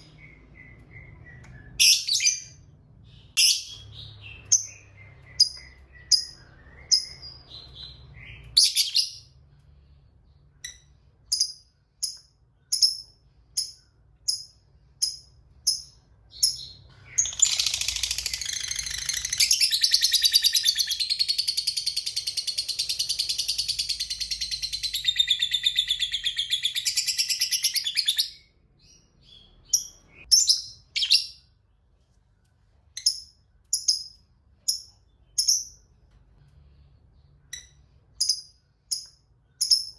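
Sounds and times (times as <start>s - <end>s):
lovebird chirping: 0.0s - 31.6s, 32.9s - 35.9s, 37.2s - 39.9s
rapid chattering bird trill: 13.7s - 25.2s.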